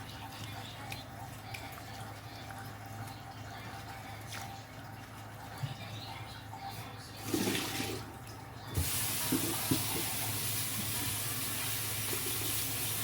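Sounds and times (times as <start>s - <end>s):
tap water running: 1.7s - 13.0s.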